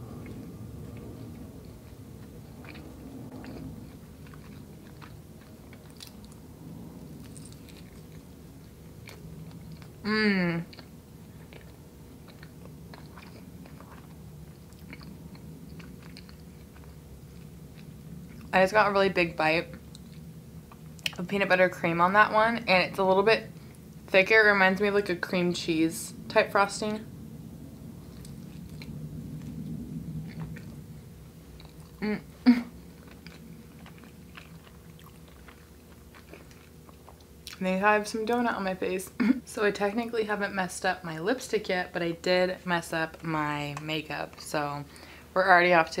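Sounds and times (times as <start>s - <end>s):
chewing with wet mouth smacks: 0.0s - 10.0s, 10.6s - 18.5s, 19.7s - 21.3s, 28.0s - 32.0s, 32.7s - 37.6s.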